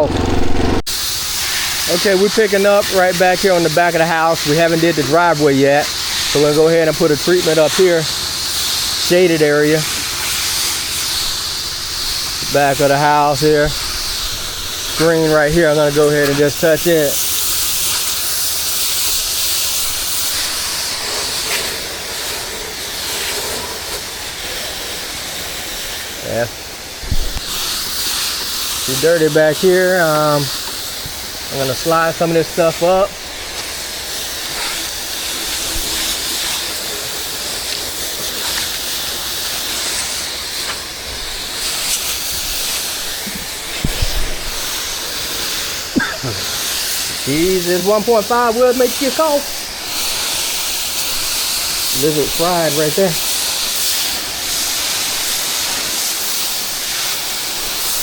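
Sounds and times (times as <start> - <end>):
low bumps: 0.0 - 0.9
pressure washer spraying water: 0.0 - 58.0.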